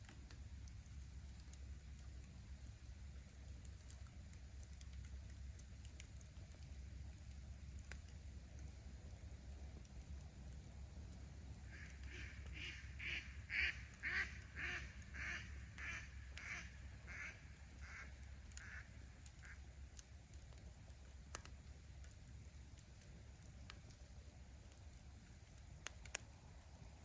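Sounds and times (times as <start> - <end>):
campfire crackles: 0.0 - 27.0
duck quacking: 12.1 - 18.8.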